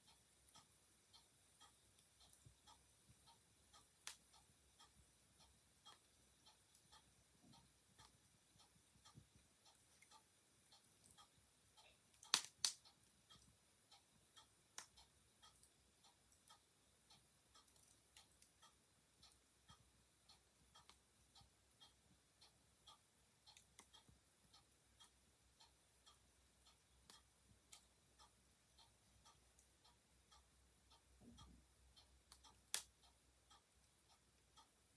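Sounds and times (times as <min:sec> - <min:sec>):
clock ticking: 0:00.0 - 0:34.9
wood fire crackling: 0:01.4 - 0:05.1, 0:11.9 - 0:12.8, 0:14.7 - 0:16.5, 0:32.3 - 0:33.0
sharp pops from fire: 0:12.2 - 0:12.8.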